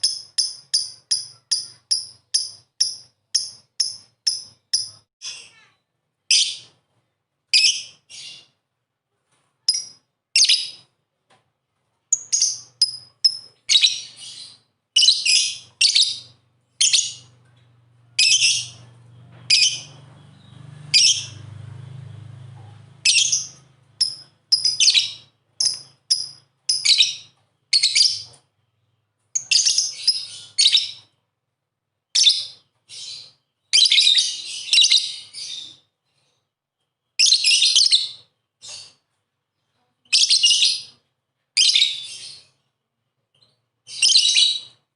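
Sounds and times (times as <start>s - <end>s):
lovebird chirping: 0.0s - 5.1s, 9.7s - 10.9s, 12.1s - 17.4s, 18.1s - 21.4s, 23.0s - 31.2s, 40.1s - 41.0s, 43.4s - 44.8s
faint low hum: 15.6s - 25.0s.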